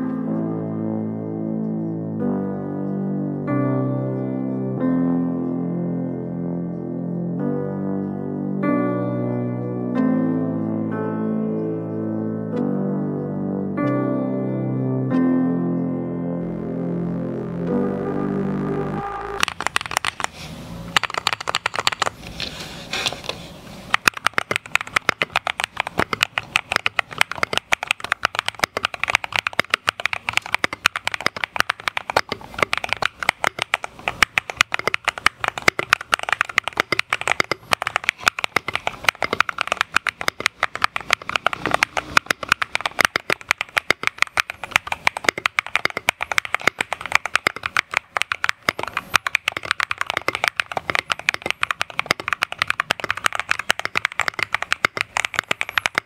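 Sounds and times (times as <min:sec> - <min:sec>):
mechanical keyboard typing: 0:19.4 - 0:22.3, 0:23.1 - 0:56.0.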